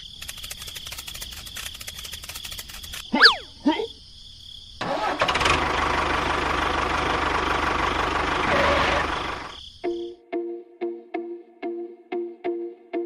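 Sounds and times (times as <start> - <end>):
small engine running: 4.8 - 9.6.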